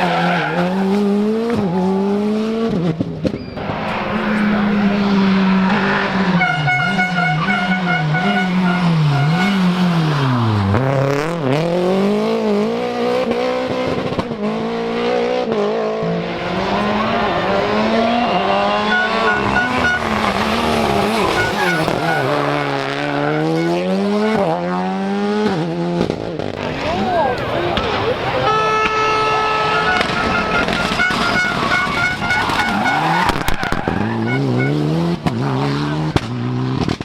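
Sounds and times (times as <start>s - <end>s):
rally car engine revving: 0.0s - 37.0s
tyres squealing: 16.4s - 24.4s, 26.6s - 35.0s.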